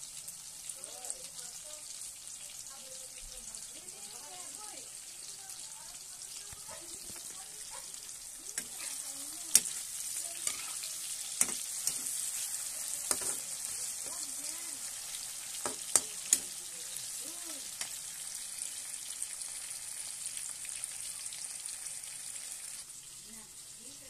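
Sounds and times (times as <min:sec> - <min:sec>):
vegetables sizzling in oil: 0:00.0 - 0:24.0
spatula knocking on pan: 0:13.1 - 0:13.4, 0:15.6 - 0:16.5.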